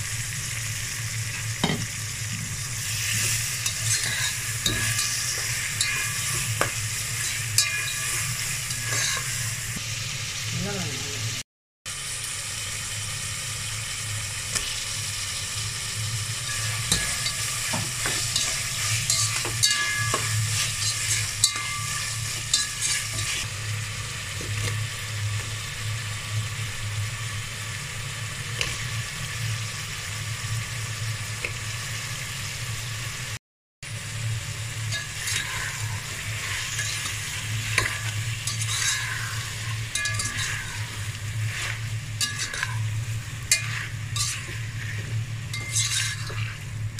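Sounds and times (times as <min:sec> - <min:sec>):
food sizzling in hot oil: 0:00.0 - 0:46.9
spatula scraping a pot: 0:02.9 - 0:09.5, 0:16.4 - 0:23.5, 0:34.9 - 0:46.9.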